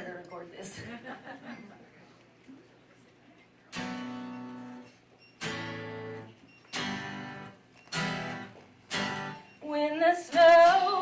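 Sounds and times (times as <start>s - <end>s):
acoustic guitar strummed chords: 3.8s - 9.6s.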